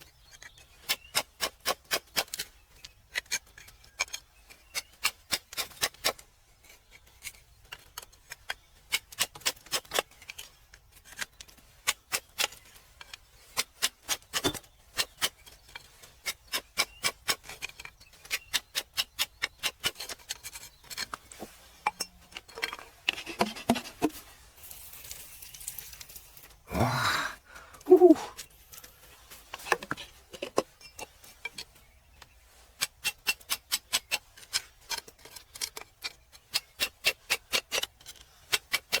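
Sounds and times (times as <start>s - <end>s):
metal tool tapping rock: 21.8s - 24.1s.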